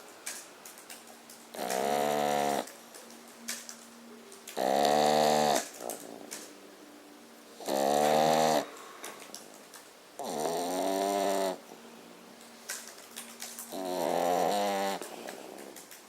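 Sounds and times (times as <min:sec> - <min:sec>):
dog snoring loudly: 0:01.5 - 0:02.7, 0:04.6 - 0:06.4, 0:07.6 - 0:09.0, 0:10.2 - 0:11.6, 0:13.7 - 0:15.8.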